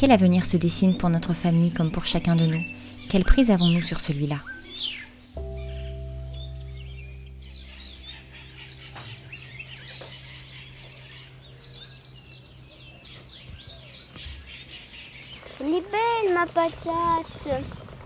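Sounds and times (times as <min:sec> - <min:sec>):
held low note: 0:00.0 - 0:13.9
birds chirping and trilling: 0:00.0 - 0:18.0.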